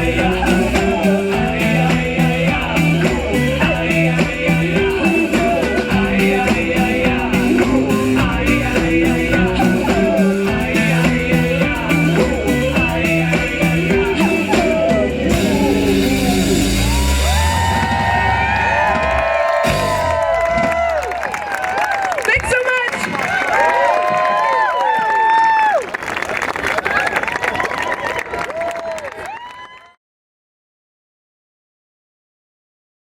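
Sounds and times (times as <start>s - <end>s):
sliding high tones: 0.0s - 20.5s
live rock band playing: 0.0s - 20.9s.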